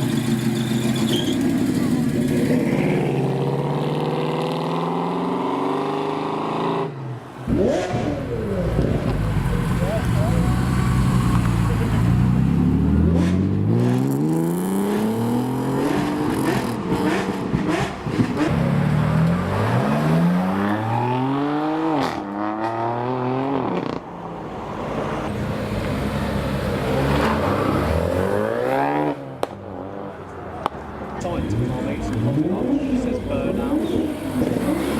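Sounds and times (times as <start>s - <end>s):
car engine accelerating hard: 31.2s - 34.9s.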